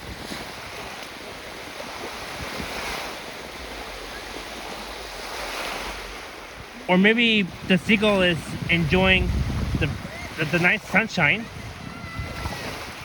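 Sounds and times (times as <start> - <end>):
lake waves washing onto beach: 0.0 - 13.0
wind rumbling on microphone: 0.0 - 13.0.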